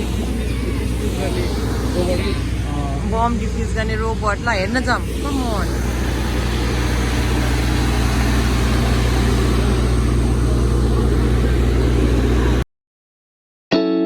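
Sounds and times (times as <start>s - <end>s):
engine running with low drone: 0.0s - 12.6s
hiss: 5.1s - 12.6s.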